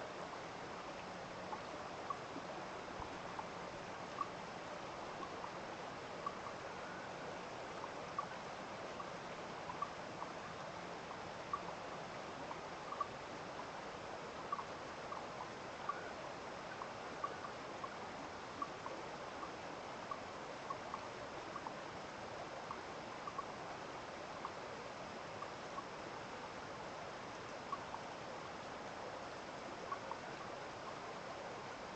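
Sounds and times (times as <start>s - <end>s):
flowing water: 0.0s - 31.9s.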